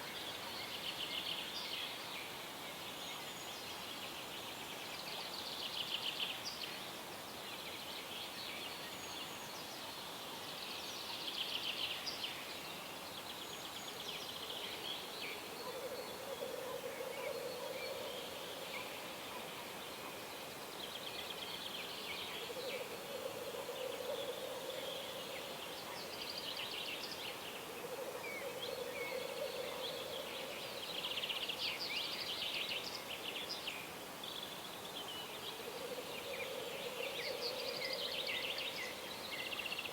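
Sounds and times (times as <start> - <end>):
steady background hiss: 0.0 - 39.9
songbirds singing and trilling: 3.0 - 39.9.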